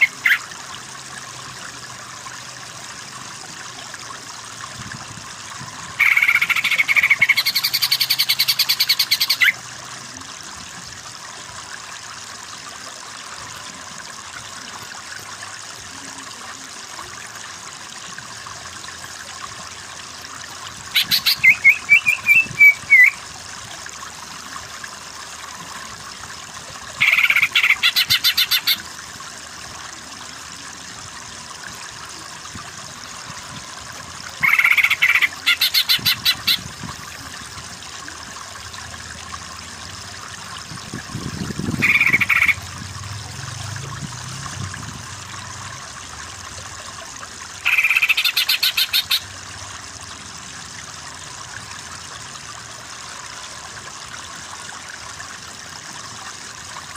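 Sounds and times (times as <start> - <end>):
running water: 0.0 - 56.9
bird singing rapid notes: 6.0 - 9.6, 21.0 - 23.2, 41.8 - 42.6.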